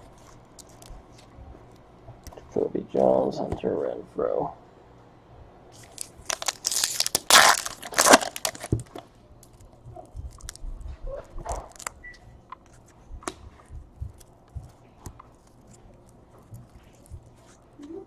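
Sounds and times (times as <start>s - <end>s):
wrapper tearing and crinkling: 5.8s - 9.6s, 10.2s - 10.6s, 11.6s - 12.0s.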